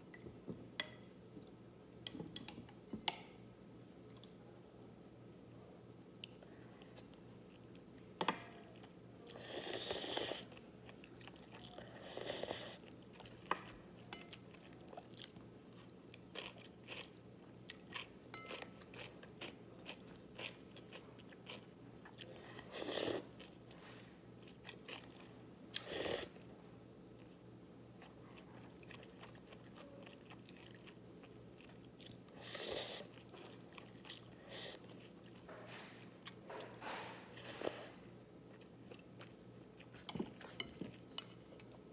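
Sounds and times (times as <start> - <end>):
person chewing and crunching: 14.3 - 23.5, 28.0 - 35.5.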